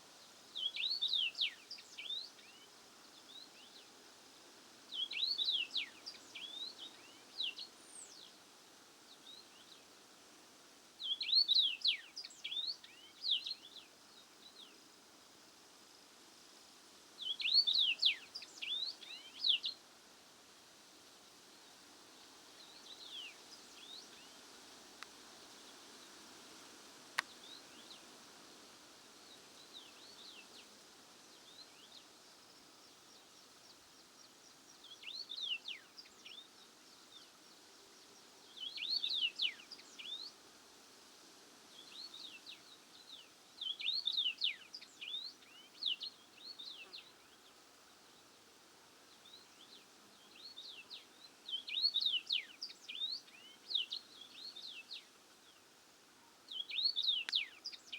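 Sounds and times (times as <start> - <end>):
songbird singing: 0.0 - 10.2, 10.9 - 16.0, 17.2 - 19.8, 21.5 - 57.9
open-air background hiss: 0.0 - 57.9.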